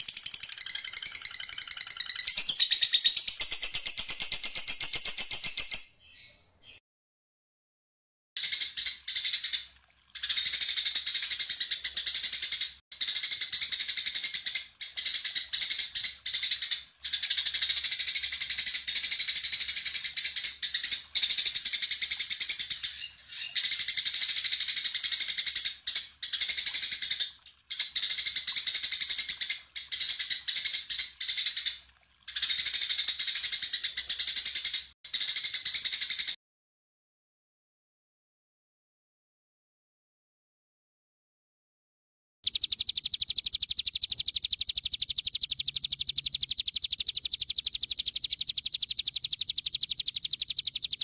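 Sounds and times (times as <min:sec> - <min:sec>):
songbird high-pitched chatter: 0:00.0 - 0:06.8, 0:42.4 - 0:51.0.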